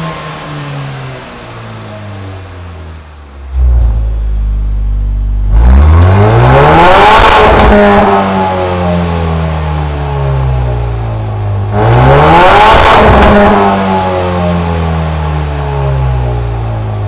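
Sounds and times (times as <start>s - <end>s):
car engine revving: 3.4s - 16.7s.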